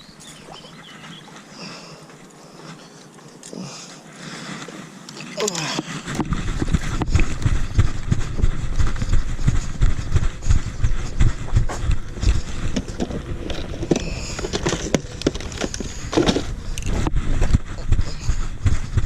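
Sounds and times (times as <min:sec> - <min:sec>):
microphone rumble and rustle: 0:03.7 - 0:19.0
heavy running footfalls: 0:05.9 - 0:19.0.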